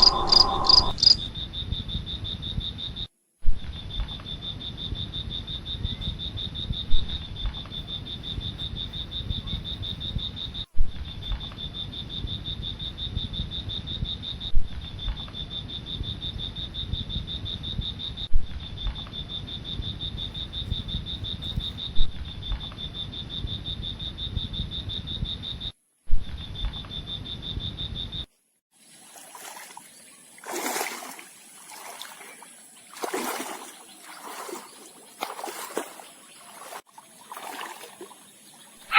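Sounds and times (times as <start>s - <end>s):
low rumbling noise: 0.0s - 1.0s
high pulsing insect trill: 0.0s - 3.1s
water splashing and sloshing: 28.7s - 38.9s.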